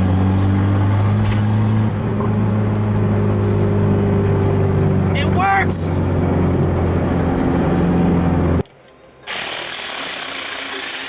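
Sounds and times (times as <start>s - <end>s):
car engine droning: 0.0s - 8.7s.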